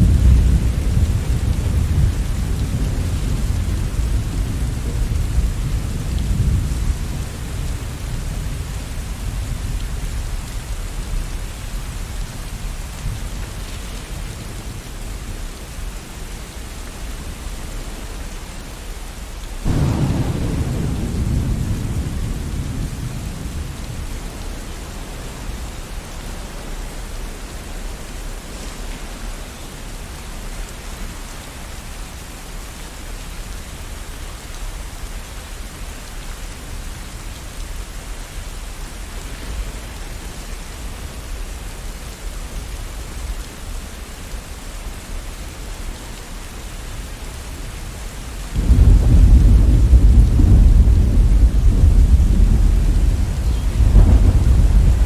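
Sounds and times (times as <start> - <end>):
thunder rumbling: 0.0 - 14.8, 19.6 - 26.0, 48.5 - 55.0
rain hissing: 0.0 - 55.0
deep roll of thunder: 19.6 - 24.4, 48.6 - 55.0.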